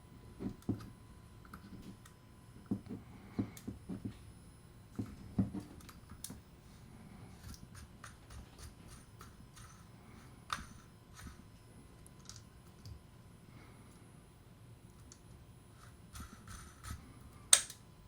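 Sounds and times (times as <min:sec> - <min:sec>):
small parts and tools clicking: 0:12.0 - 0:13.0, 0:15.8 - 0:17.9.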